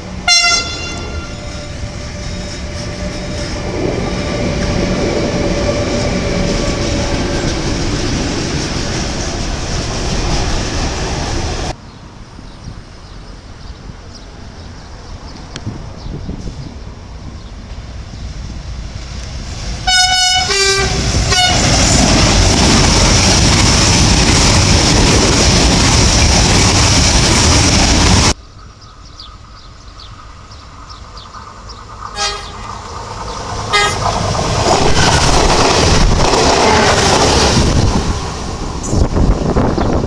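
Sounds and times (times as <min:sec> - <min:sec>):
train rushing past: 0:00.0 - 0:12.3, 0:13.3 - 0:28.4, 0:29.2 - 0:40.0
train horn: 0:00.2 - 0:04.3, 0:19.8 - 0:22.0, 0:32.2 - 0:32.8, 0:33.7 - 0:35.2.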